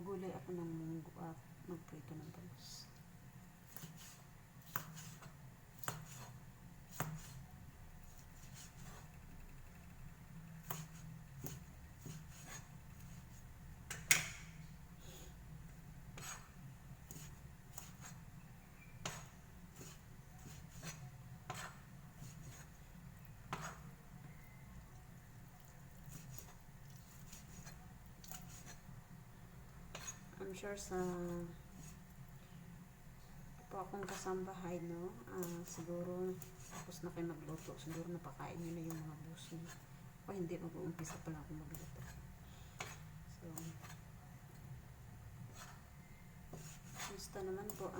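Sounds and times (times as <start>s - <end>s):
steady low hum: 0.0s - 47.9s
knife chopping on cutting board: 19.0s - 21.8s, 23.5s - 23.8s.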